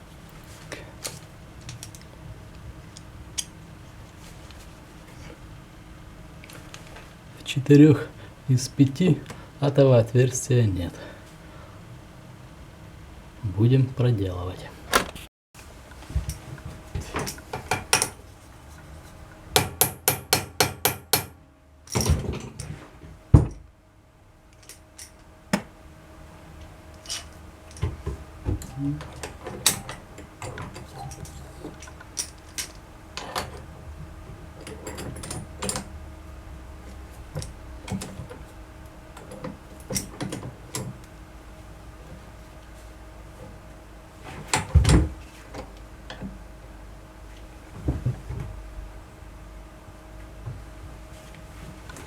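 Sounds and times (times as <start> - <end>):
faint steady hum: 0.0 - 52.0
knocks and clinks on metal clamps: 17.0 - 18.2, 19.5 - 22.7, 27.0 - 33.7, 34.6 - 35.9.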